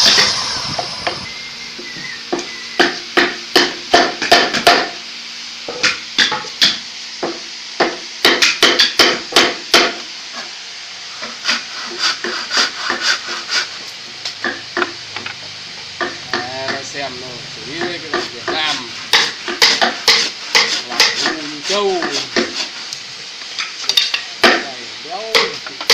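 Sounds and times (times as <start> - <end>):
hammering on wood: 2.8 - 5.0, 5.7 - 10.0, 17.8 - 22.6, 24.4 - 25.9.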